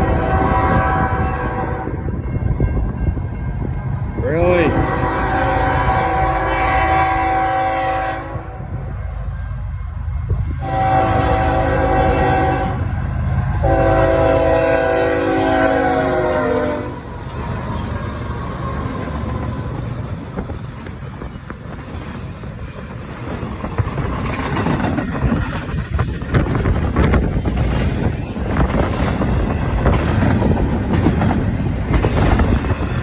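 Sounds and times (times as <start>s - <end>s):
train air horn blasts: 0.0s - 2.0s, 4.3s - 8.7s, 10.6s - 17.1s
freight train rumbling by: 0.0s - 33.0s.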